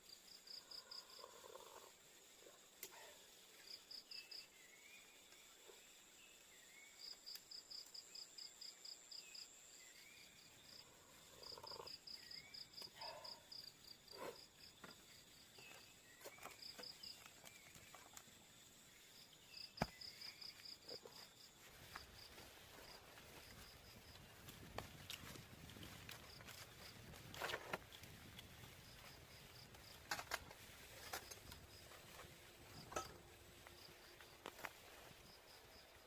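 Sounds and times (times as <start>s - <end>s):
insects chirping: 0.0s - 36.0s.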